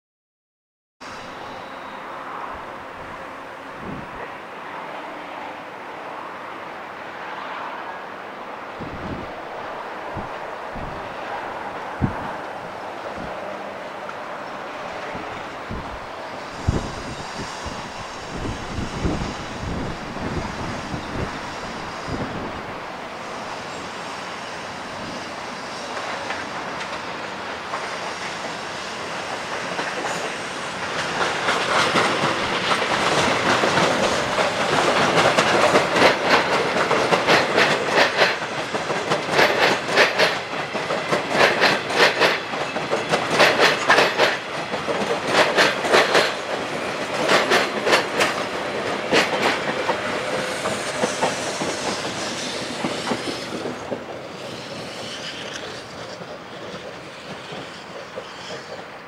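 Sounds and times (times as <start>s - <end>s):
train wheels clicking over rail joints: 25.8s - 59.0s.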